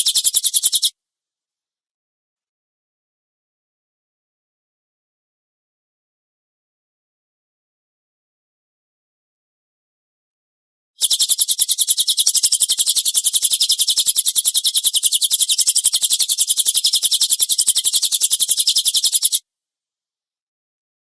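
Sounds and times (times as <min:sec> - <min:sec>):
rapid scratchy bird call: 0:00.0 - 0:00.9, 0:11.0 - 0:19.4.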